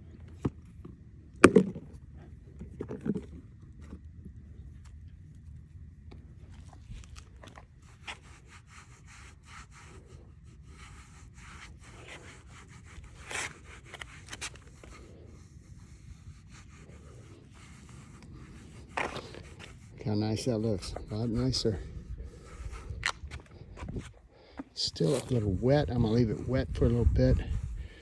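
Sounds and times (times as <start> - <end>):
towel rubbing on plastic: 6.7 - 28.0
steady low rumble: 9.8 - 28.0.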